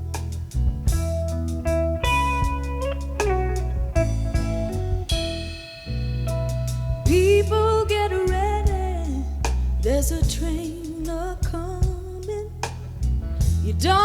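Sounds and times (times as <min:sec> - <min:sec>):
picked guitar notes: 0:00.0 - 0:08.3
bass line: 0:00.0 - 0:14.0.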